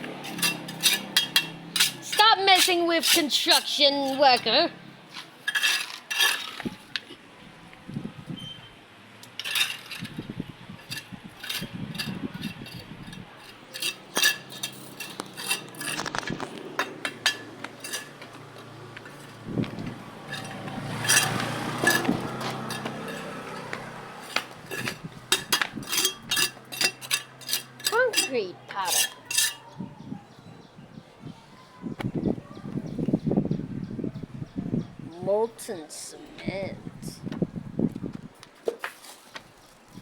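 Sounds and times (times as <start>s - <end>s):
small objects clinking in container: 9.3s - 10.2s, 13.4s - 18.2s, 20.3s - 29.6s.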